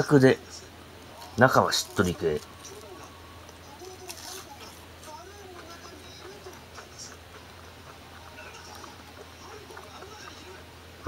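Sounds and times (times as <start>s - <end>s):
low steady hum: 0.0s - 11.0s
chewing crispy food: 1.0s - 10.7s.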